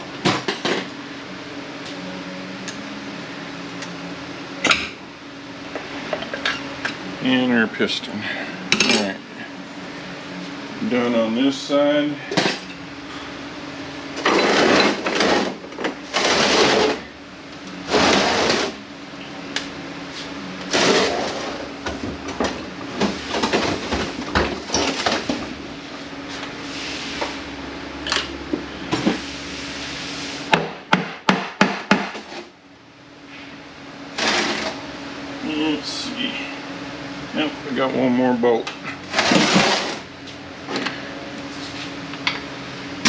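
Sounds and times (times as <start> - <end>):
metal parts scraping and clattering: 14.2 - 15.5.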